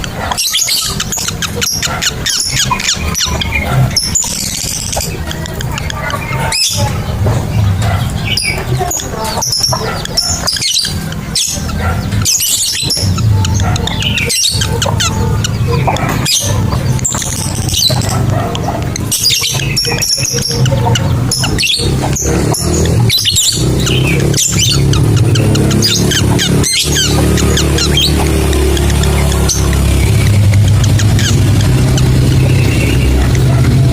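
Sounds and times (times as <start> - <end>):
birds chirping shrilly: 0.0 - 33.9
low drone: 0.0 - 33.9.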